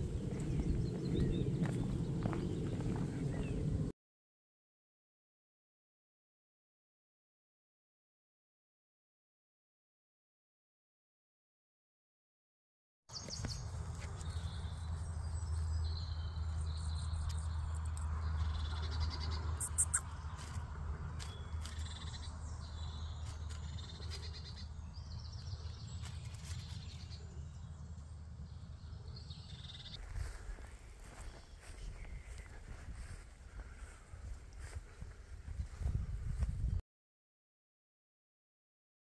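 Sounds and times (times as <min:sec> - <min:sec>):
small birds singing: 0:00.0 - 0:03.9, 0:13.1 - 0:36.8
steady low rumble: 0:00.0 - 0:03.9.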